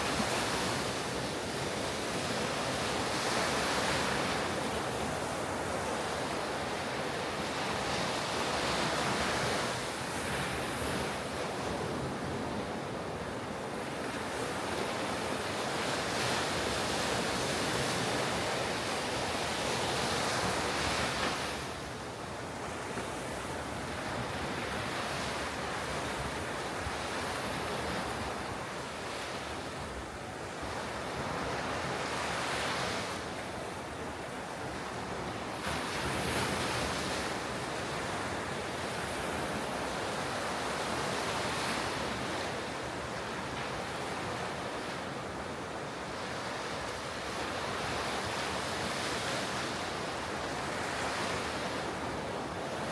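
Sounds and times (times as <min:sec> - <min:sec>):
ocean surf breaking on beach: 0:00.0 - 0:52.9.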